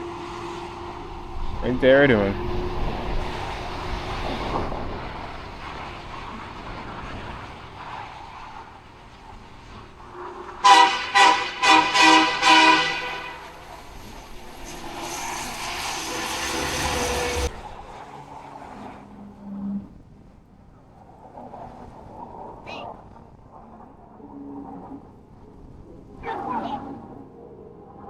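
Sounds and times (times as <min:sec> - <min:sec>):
truck engine running: 0:00.0 - 0:09.1, 0:10.8 - 0:17.6
steady hiss: 0:00.0 - 0:17.6
vehicle horn tooting: 0:10.6 - 0:17.5.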